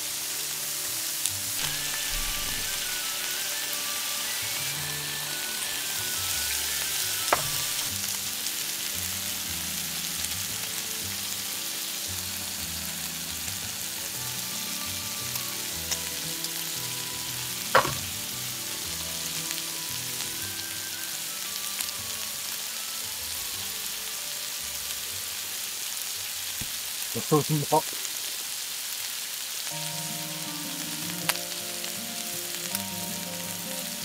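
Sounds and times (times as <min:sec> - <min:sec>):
soft background music: 0:00.0 - 0:26.6, 0:29.6 - 0:34.0
food sizzling in a hot pan: 0:00.0 - 0:34.0.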